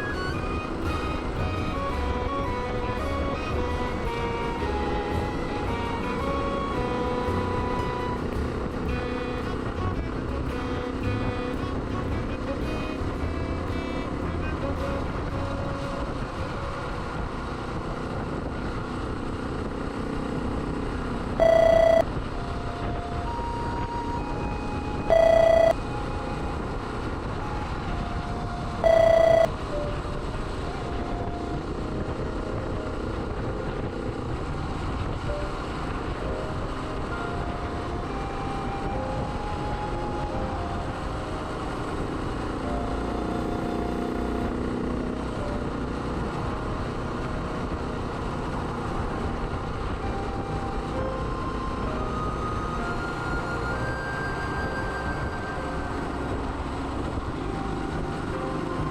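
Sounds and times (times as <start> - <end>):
road and wind noise: 0.0 - 58.9
short electronic beeps: 21.4 - 22.1, 25.1 - 25.8, 28.8 - 29.5.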